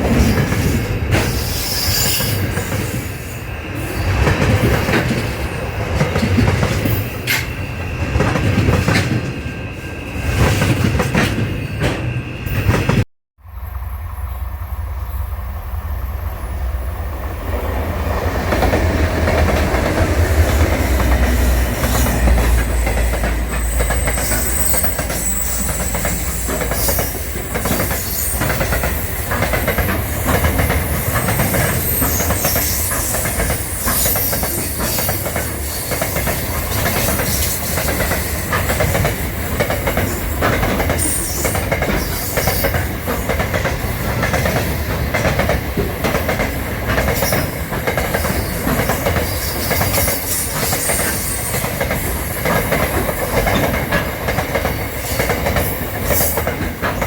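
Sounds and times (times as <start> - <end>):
train rumble: 0.0 - 57.0
wheels clacking over rail joints: 18.1 - 57.0
wheel squeals: 21.8 - 38.4.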